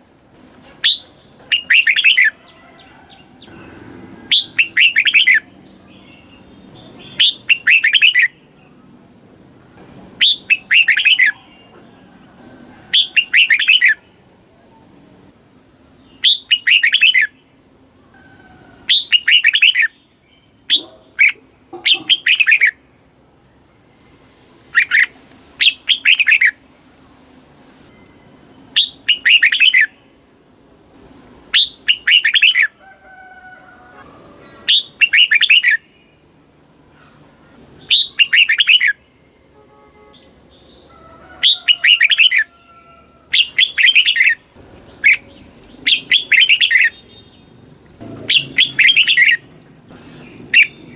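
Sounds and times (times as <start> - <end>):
bird singing: 0.8 - 14.8, 15.9 - 22.8, 27.9 - 30.3, 31.5 - 33.0, 34.3 - 50.9
faint bird calls: 40.1 - 50.9.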